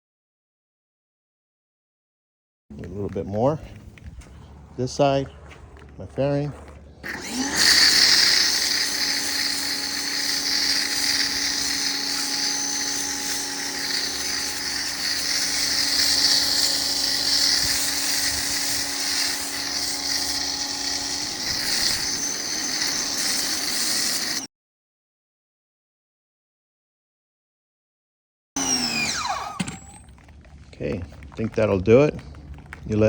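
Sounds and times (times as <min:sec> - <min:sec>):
motor-pump hum: 0:05.5 - 0:24.5, 0:28.6 - 0:30.7
hiss of spray: 0:07.6 - 0:24.5.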